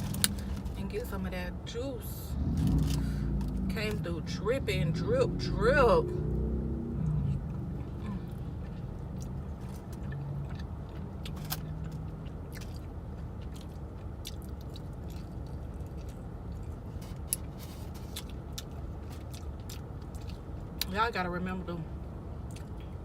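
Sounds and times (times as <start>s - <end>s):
steady low hum: 0.0s - 23.0s
chewing and biting chicken wings: 7.7s - 20.8s.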